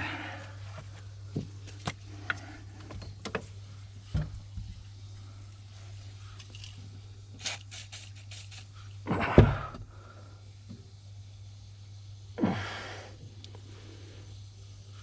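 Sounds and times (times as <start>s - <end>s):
steady low hum: 0.0s - 15.0s
brushing scrape: 7.4s - 8.7s.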